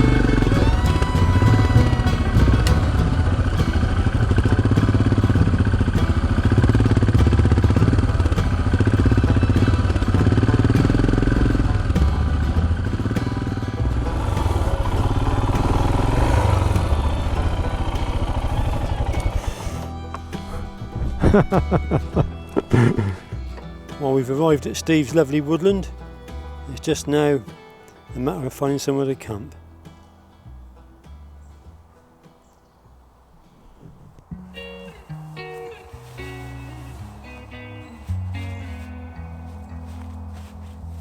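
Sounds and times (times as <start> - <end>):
motorcycle engine droning: 0.0 - 26.8.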